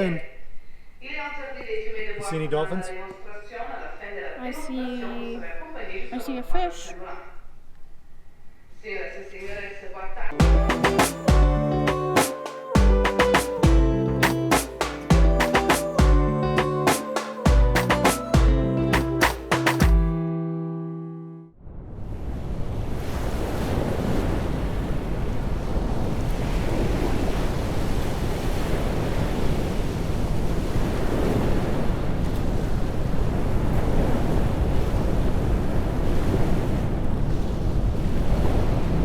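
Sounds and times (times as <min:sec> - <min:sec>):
water rushing: 0:10.4 - 0:20.0
wind on microphone: 0:21.8 - 0:39.0.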